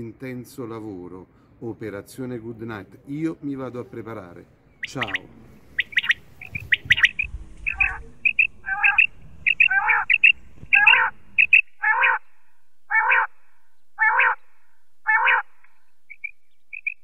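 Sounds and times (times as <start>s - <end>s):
faint low hum: 3.8s - 17.0s
electronic bird calls chirping: 4.8s - 12.3s, 12.9s - 13.3s, 14.0s - 14.4s, 15.0s - 17.0s.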